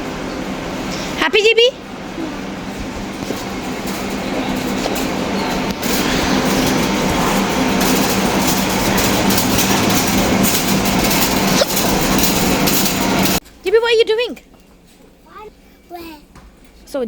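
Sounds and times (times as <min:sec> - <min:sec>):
shopping trolley rattling: 0:02.4 - 0:13.4.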